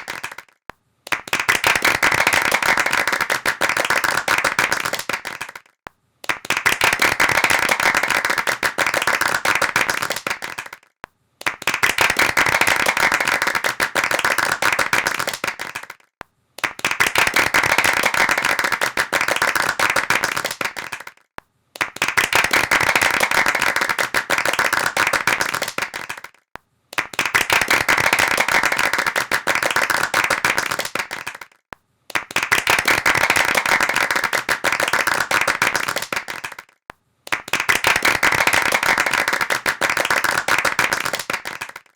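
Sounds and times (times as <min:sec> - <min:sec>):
hands clapping in applause: 0:00.0 - 0:41.9.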